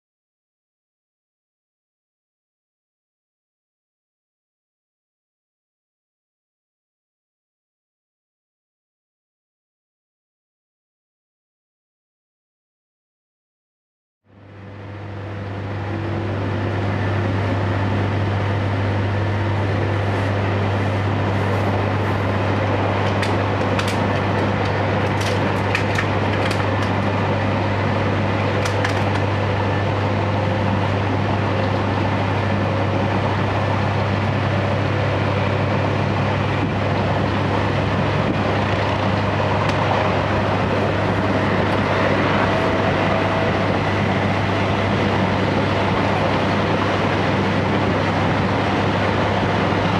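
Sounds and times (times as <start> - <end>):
electric train interior hum: 14.3 - 49.9.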